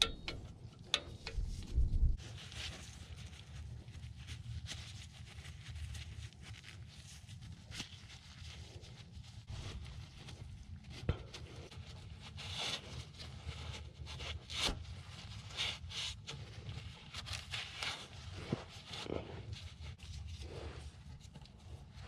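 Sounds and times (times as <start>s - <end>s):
steady low hum: 0.0s - 2.2s
scraping and rubbing small parts: 0.0s - 6.9s.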